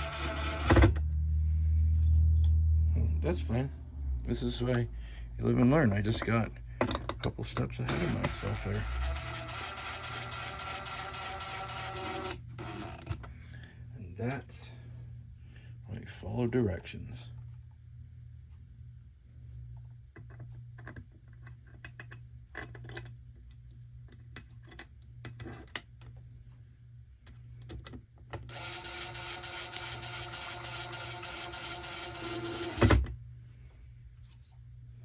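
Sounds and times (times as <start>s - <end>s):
cordless screw gun whirring: 0.0s - 1.0s, 7.9s - 13.2s, 28.5s - 33.1s.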